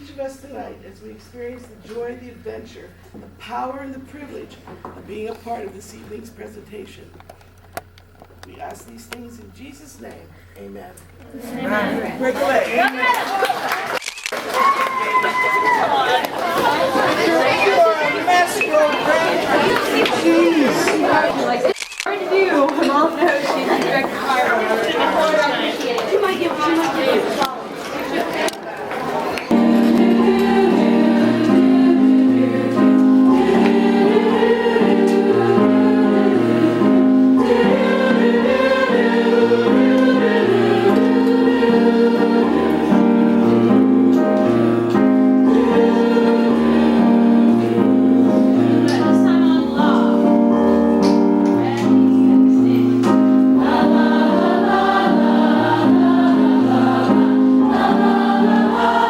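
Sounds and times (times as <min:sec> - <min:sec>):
choir singing gospel: 0:15.9 - 0:21.6, 0:29.3 - 0:59.0
instrumental accompaniment with bass: 0:29.5 - 0:59.0.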